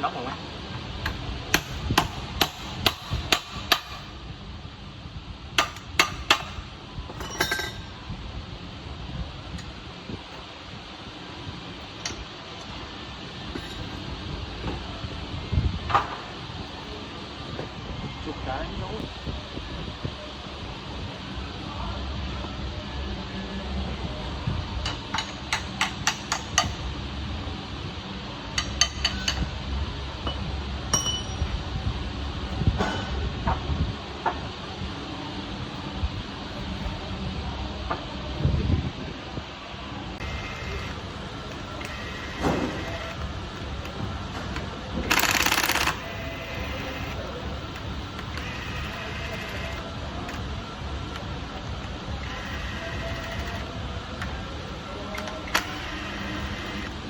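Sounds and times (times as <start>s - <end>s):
metallic clink with ringing: 7.2s - 7.9s, 30.9s - 31.5s
hammer tapping metal: 30.9s - 31.4s.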